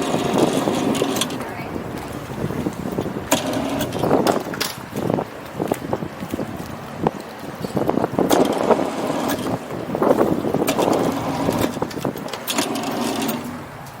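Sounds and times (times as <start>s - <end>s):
small boat motor running: 0.0s - 1.6s, 3.2s - 4.3s, 8.3s - 13.8s
knocks and rattles: 8.2s - 14.0s.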